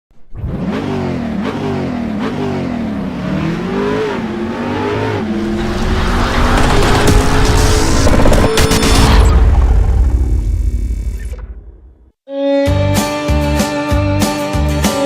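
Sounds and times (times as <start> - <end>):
car engine revving: 0.3 - 12.0.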